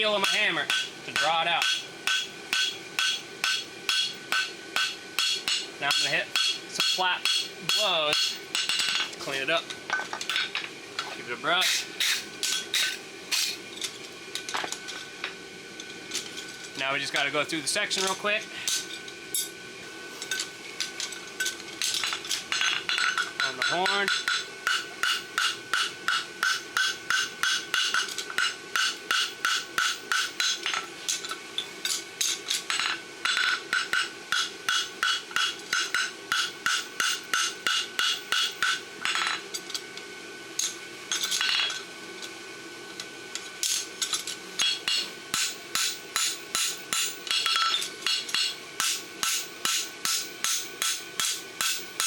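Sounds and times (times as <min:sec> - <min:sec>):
hammer striking horseshoe on anvil: 0:00.2 - 0:09.1, 0:11.6 - 0:13.6, 0:22.0 - 0:31.2, 0:31.9 - 0:39.4, 0:43.6 - 0:52.0.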